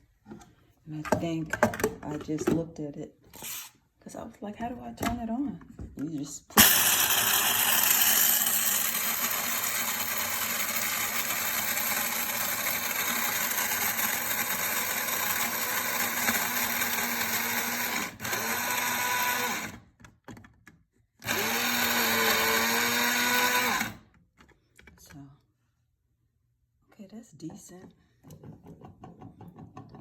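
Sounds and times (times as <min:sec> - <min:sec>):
coffee grinder grinding kibble: 0:06.6 - 0:19.8, 0:21.2 - 0:24.1.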